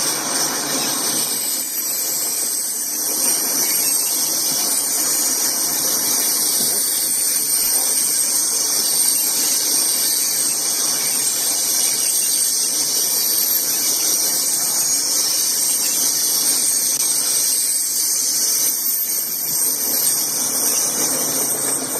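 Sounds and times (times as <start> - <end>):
freight train rolling past: 0.0 - 11.7, 18.9 - 21.9
high-pitched ringing tones: 0.0 - 21.9.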